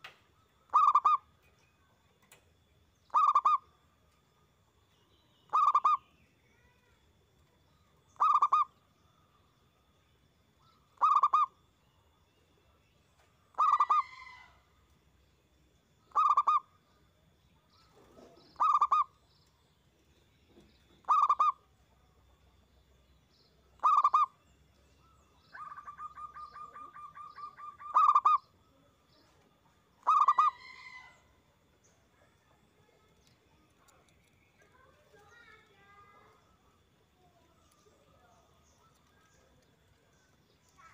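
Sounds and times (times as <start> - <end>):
dove cooing: 0.7 - 1.2, 3.1 - 3.6, 5.5 - 6.0, 8.2 - 8.7, 11.0 - 11.5, 13.6 - 14.5, 16.1 - 16.6, 18.0 - 19.1, 21.0 - 21.6, 23.8 - 24.3, 25.5 - 28.4, 30.0 - 31.2.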